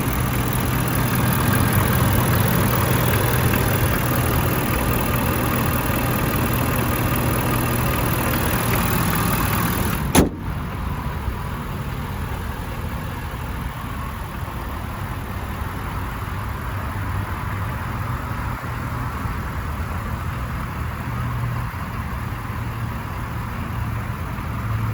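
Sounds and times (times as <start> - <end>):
diesel truck engine idling: 0.0 - 24.9
loud slam: 10.1 - 10.6.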